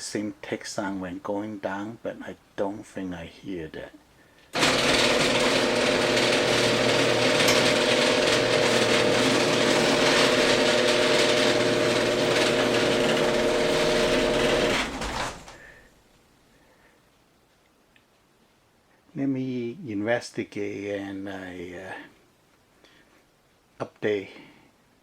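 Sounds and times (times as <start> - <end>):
screw drive rattling: 4.6 - 15.6
garage door opener motor hum: 4.6 - 15.8.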